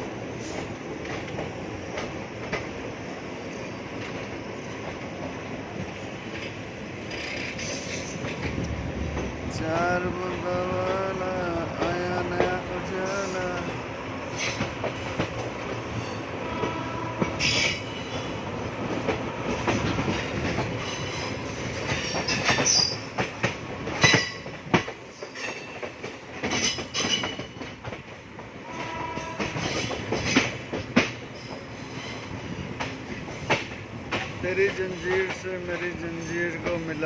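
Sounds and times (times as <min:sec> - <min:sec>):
train rumbling on track: 0:00.0 - 0:37.0
wheels clattering over rails: 0:03.9 - 0:09.8.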